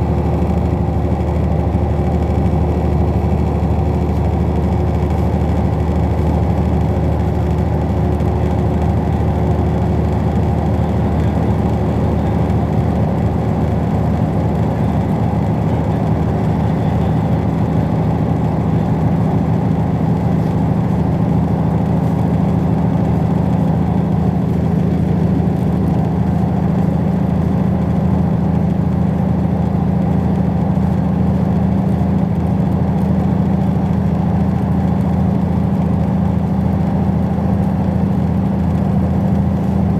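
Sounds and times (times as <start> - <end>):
train running rumble: 0.0 - 39.9.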